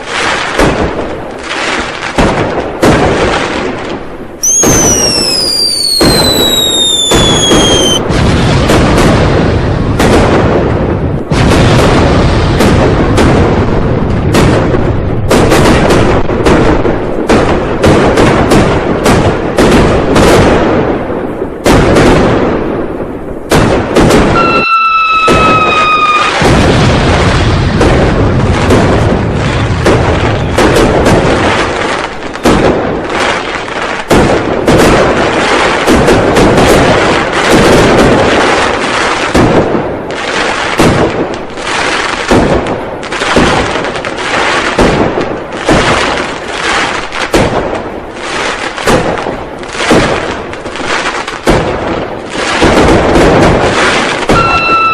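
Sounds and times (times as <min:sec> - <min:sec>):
firecrackers banging: 0:00.0 - 0:54.9
heavy firework booms: 0:00.0 - 0:54.9
downward sliding whistle: 0:04.4 - 0:08.0, 0:24.4 - 0:26.4, 0:54.4 - 0:54.9.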